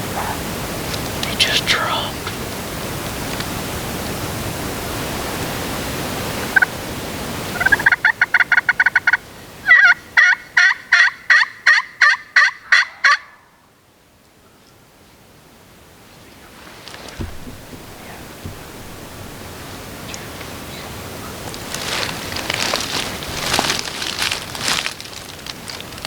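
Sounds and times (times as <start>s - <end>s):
turkey gobbling: 7.5s - 13.4s.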